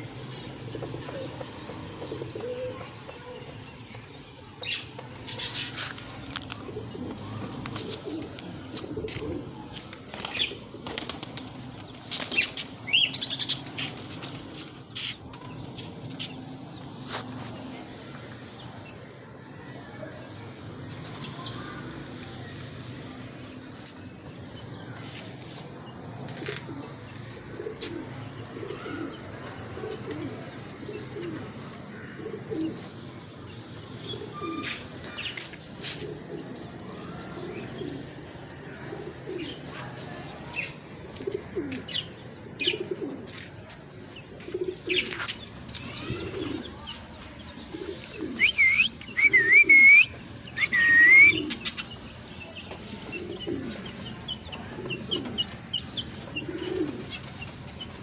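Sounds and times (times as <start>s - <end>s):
pigeons cooing: 0.6s - 2.9s, 5.3s - 15.6s, 26.1s - 58.0s.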